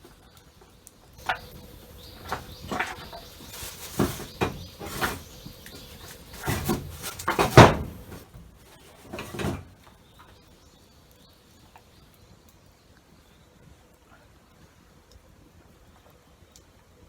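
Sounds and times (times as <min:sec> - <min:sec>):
knocks and clattering handling: 0:01.2 - 0:09.8.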